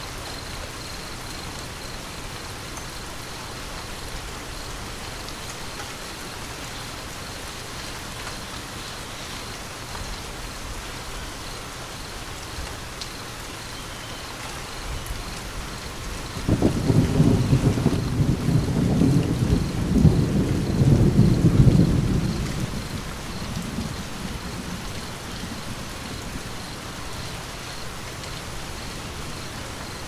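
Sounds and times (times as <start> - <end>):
rain falling: 0.0 - 30.0
deep thunder rumble: 15.0 - 27.2.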